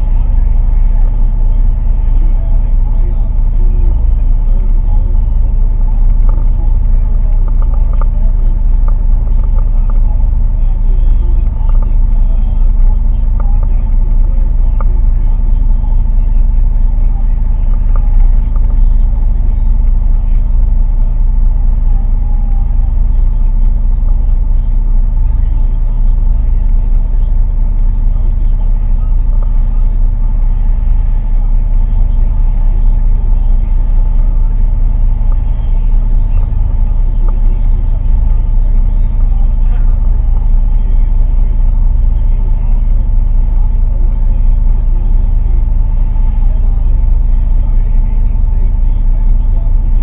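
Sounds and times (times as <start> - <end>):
engine droning steadily: 0.0 - 50.0.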